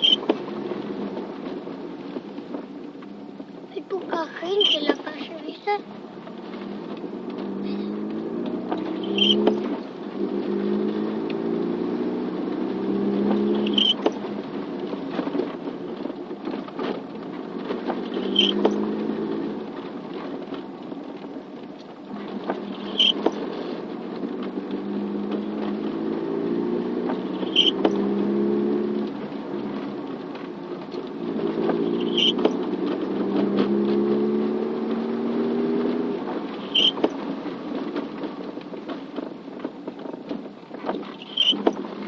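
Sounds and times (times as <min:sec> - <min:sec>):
car engine accelerating: 0:00.0 - 0:42.0
rain and tyres hissing: 0:00.0 - 0:42.0
short high chirp: 0:09.0 - 0:09.4, 0:13.6 - 0:14.0, 0:18.2 - 0:18.6, 0:27.4 - 0:27.8, 0:32.0 - 0:32.4, 0:41.2 - 0:41.6.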